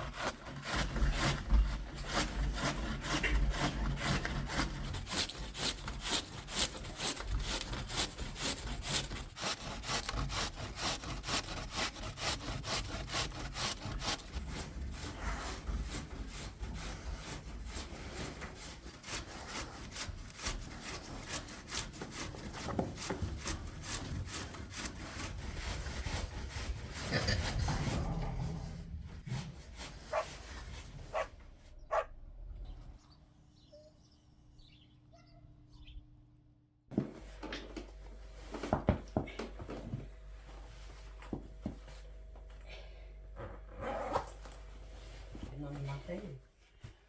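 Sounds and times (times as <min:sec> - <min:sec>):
hand saw cutting wood: 0:00.0 - 0:28.1, 0:29.2 - 0:31.4.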